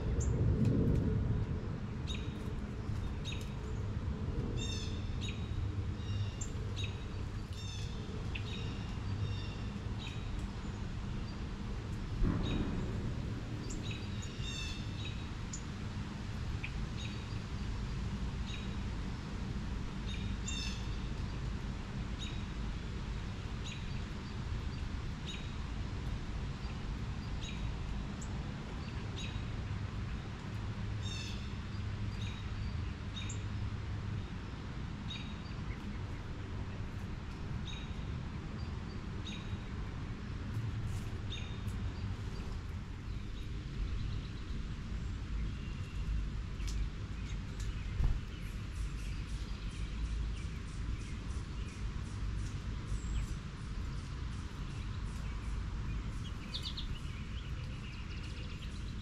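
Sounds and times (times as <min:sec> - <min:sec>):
low background rumble: 0:00.0 - 0:29.0
birds chirping: 0:41.3 - 0:59.0.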